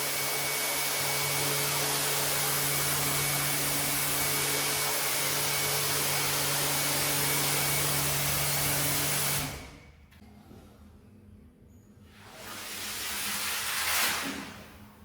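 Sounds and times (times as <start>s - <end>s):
rug cleaning machine motor: 0.0s - 9.7s.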